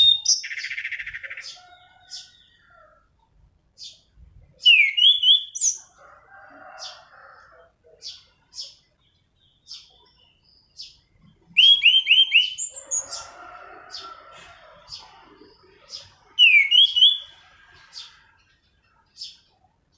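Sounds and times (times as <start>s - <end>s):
thrush singing whistled notes: 0.0s - 2.2s, 4.6s - 5.9s, 10.8s - 13.3s, 16.0s - 17.4s.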